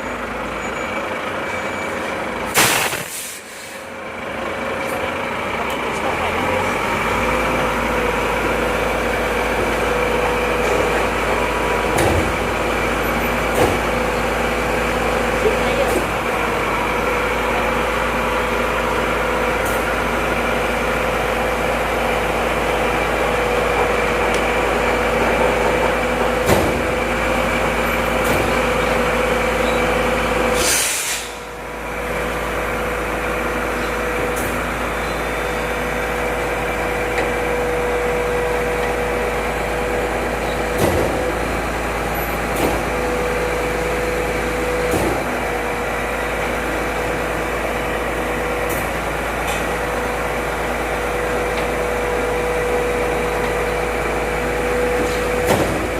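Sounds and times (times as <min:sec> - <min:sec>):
truck engine drone: 0:00.0 - 0:55.9
air hiss: 0:02.6 - 0:03.8, 0:30.6 - 0:31.4.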